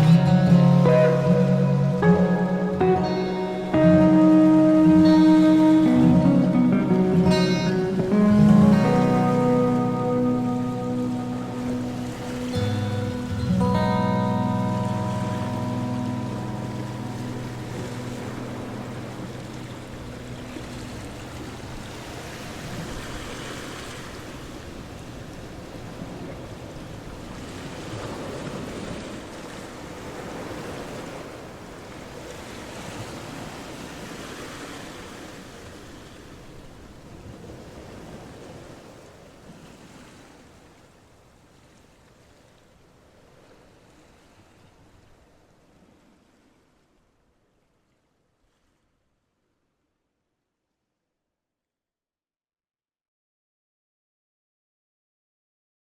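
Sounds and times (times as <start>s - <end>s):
music tones: 0.0s - 22.3s
ocean surf washing on shore: 0.0s - 46.9s.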